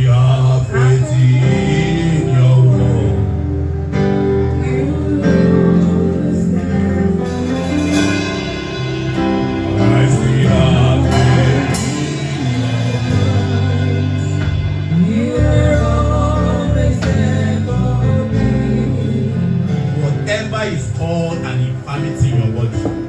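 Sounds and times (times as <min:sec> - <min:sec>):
gospel singing with instruments: 0:00.0 - 0:23.0.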